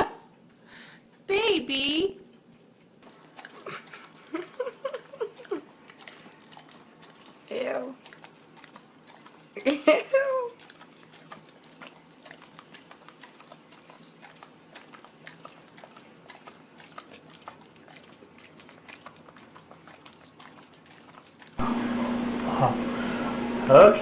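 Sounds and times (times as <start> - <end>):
dog licking and smacking: 3.0 - 21.6.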